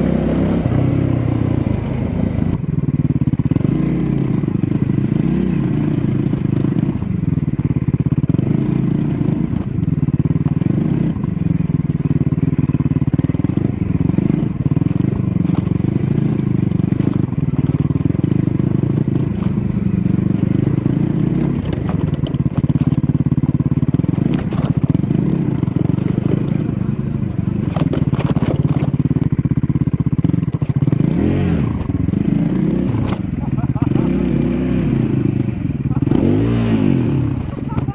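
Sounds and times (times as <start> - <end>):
motorcycle engine revving: 0.0 - 37.9
knocks and clatter: 21.6 - 23.0, 24.0 - 25.0, 27.6 - 29.3, 30.4 - 31.0.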